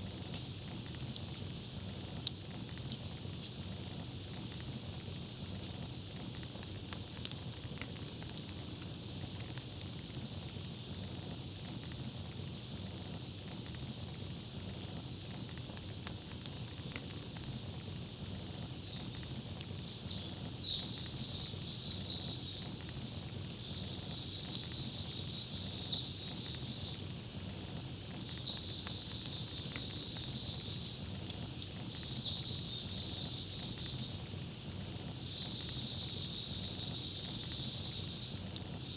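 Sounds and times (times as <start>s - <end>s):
campfire crackling: 0.0s - 38.9s
songbird whistle and trill: 20.0s - 22.6s, 23.7s - 26.9s, 32.1s - 34.1s.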